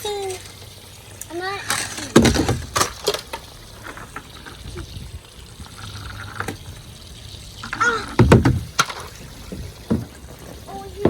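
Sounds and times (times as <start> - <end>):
child's voice: 0.0 - 0.5, 1.2 - 2.2, 10.6 - 11.0
water trickling: 0.0 - 11.0
small knocks: 1.7 - 5.0, 7.6 - 11.0.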